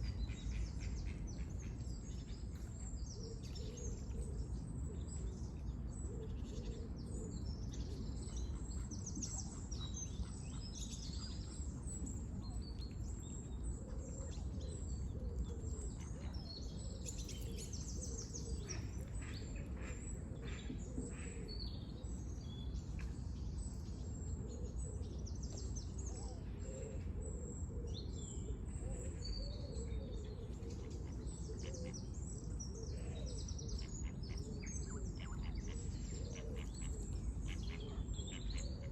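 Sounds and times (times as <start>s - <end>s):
small birds chirping: 8.4s - 23.5s.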